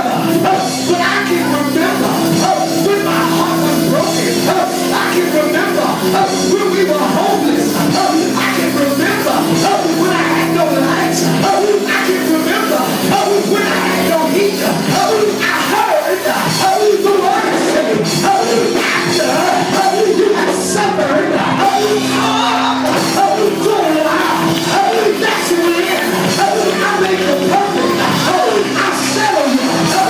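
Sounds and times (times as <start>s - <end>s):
gospel church music: 0.0s - 30.0s
person singing and shouting: 0.0s - 30.0s.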